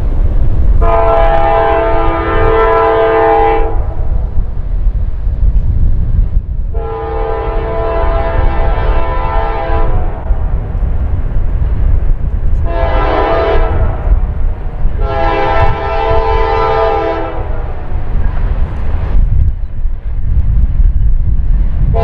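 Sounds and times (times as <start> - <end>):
low rumble: 0.0 - 22.0
locomotive air horn blasts: 0.8 - 4.0, 6.7 - 10.3, 12.6 - 14.2, 15.0 - 17.9.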